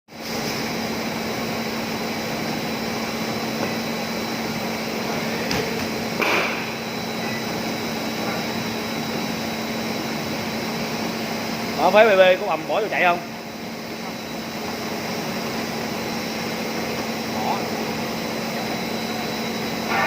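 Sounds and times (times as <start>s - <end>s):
cutting machine humming: 18.5s - 20.0s.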